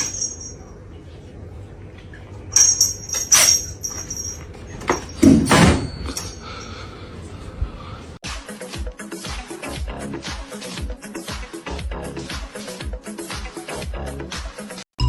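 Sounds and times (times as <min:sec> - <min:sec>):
dance music with steady beat: 0:08.2 - 0:14.8.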